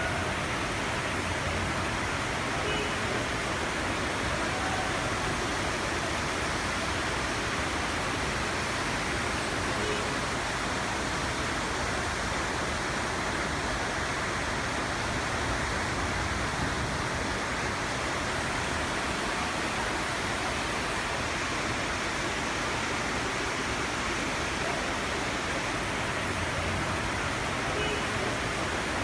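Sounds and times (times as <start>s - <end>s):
floodwater rushing: 0.0s - 29.0s.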